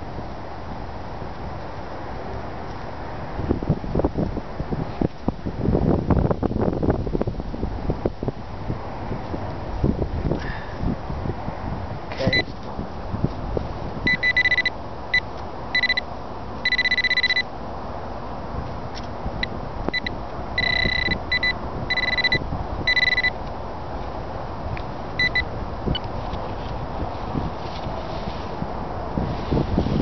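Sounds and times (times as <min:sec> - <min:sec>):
wind noise on microphone: 0:00.0 - 0:16.0, 0:16.6 - 0:30.0
metal detector high beeps: 0:14.1 - 0:14.7, 0:15.8 - 0:16.0, 0:16.7 - 0:17.4, 0:19.9 - 0:23.3, 0:25.2 - 0:25.4.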